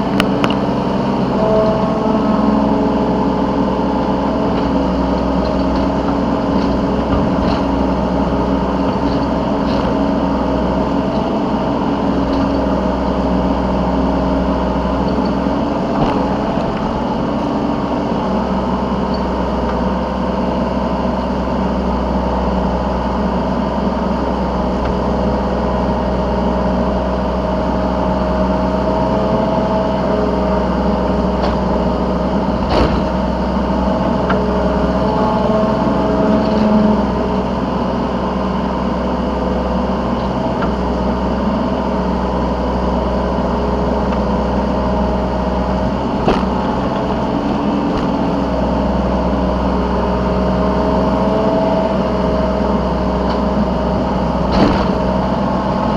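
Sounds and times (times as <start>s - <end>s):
diesel excavator engine running: 0.0s - 55.9s
sharp knocks: 46.0s - 48.3s.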